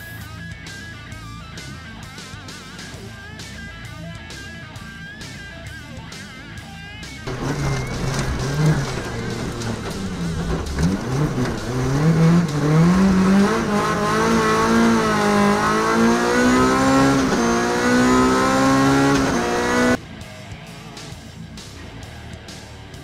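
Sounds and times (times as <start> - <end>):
rally car engine accelerating: 4.3 - 20.0.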